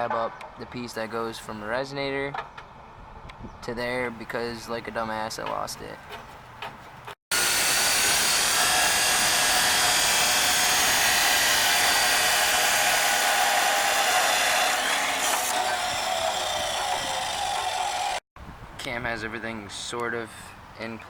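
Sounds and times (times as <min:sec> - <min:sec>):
grinder on steel pipe: 0:07.3 - 0:18.2.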